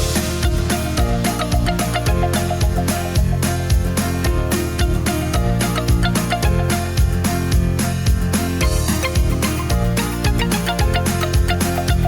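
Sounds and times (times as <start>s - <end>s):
dance music with steady beat: 0.0s - 12.0s.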